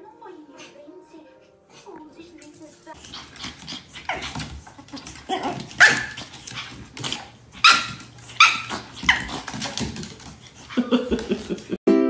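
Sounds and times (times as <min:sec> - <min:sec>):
puppy yapping: 0:03.0 - 0:10.8.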